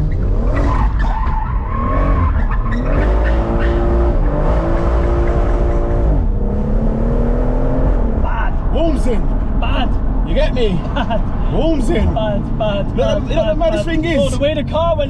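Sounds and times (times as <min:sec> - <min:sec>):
car engine revving hard: 0:00.0 - 0:08.2.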